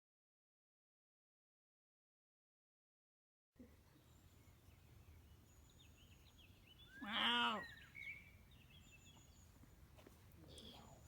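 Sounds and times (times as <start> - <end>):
small birds chirping: 3.6 - 11.0
loud bird call: 6.8 - 8.3.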